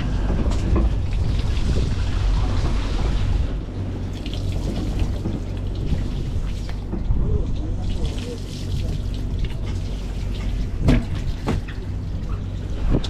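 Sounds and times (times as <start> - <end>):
boat low hum: 0.0 - 13.0
water splashing and running: 4.0 - 7.0, 7.8 - 12.7.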